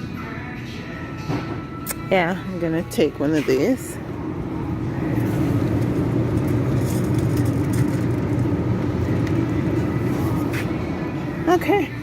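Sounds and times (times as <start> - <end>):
shopping cart wheels rolling: 4.9 - 10.8.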